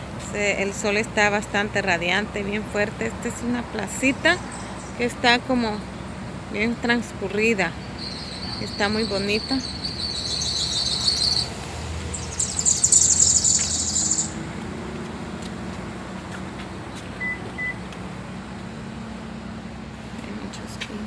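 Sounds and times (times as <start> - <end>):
low hum of vehicles: 0.0 - 21.0
small birds trilling chirps: 4.4 - 5.1, 7.7 - 14.4
short beeps: 17.2 - 17.8.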